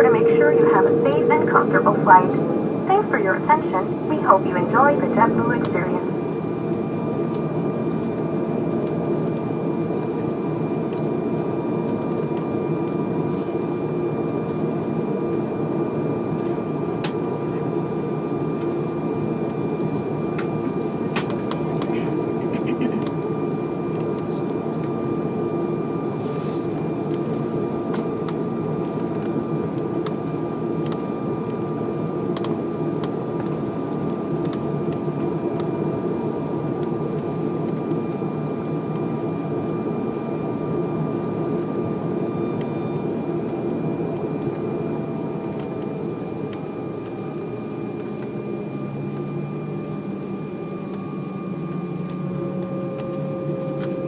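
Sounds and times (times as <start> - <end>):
jet engines whining: 0.0 - 47.4.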